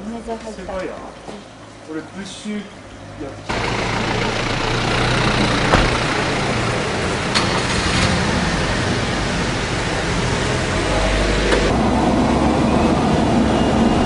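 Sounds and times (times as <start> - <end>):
engine running: 0.0 - 14.0
sharp knocks: 5.7 - 6.1.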